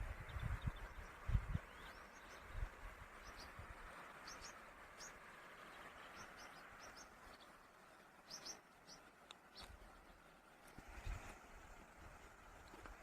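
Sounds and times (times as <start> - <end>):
small bird chirping: 3.2 - 7.5, 8.2 - 10.2.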